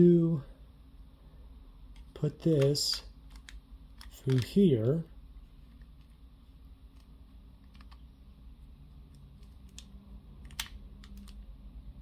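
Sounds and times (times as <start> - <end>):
low steady hum: 0.0 - 12.0
plastic puzzle pieces clicking: 2.0 - 4.6, 6.9 - 8.0, 9.1 - 11.4.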